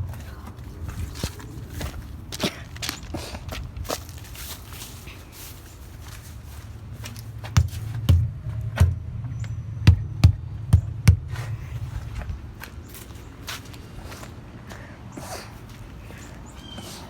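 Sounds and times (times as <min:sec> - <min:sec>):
steady low hum: 0:05.6 - 0:16.6
dull thumps on tires: 0:07.2 - 0:12.2.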